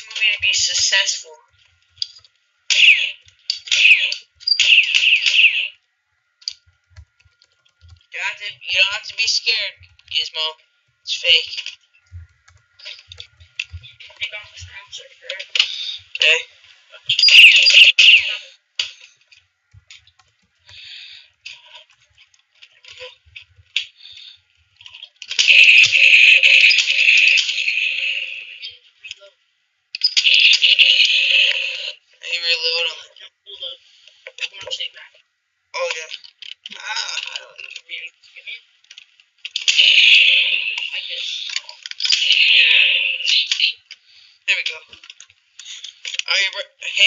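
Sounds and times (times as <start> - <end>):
electronic toy gun sound effect: 2.7 - 5.8.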